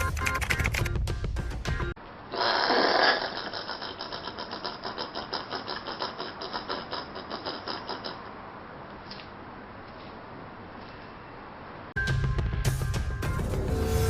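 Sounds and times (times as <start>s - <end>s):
animal chattering call: 2.5s - 8.3s.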